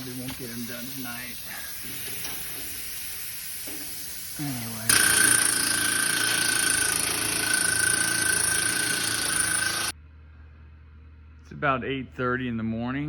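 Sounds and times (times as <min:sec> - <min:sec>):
machine whining over hiss: 0:00.0 - 0:09.9.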